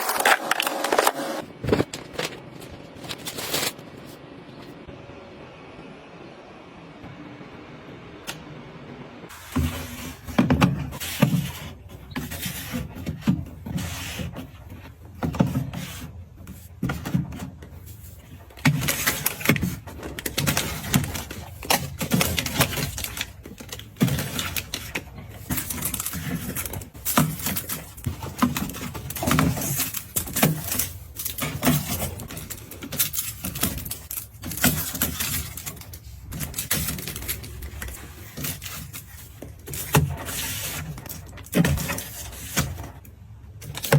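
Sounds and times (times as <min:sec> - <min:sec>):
packaging rustling: 0:00.0 - 0:04.8, 0:17.7 - 0:43.0.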